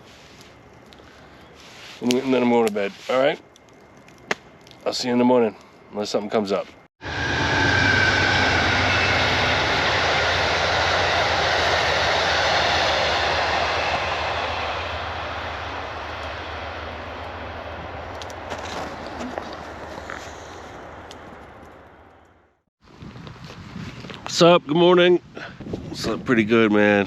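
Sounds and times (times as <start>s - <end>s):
train rumbling on tracks: 7.0s - 21.0s.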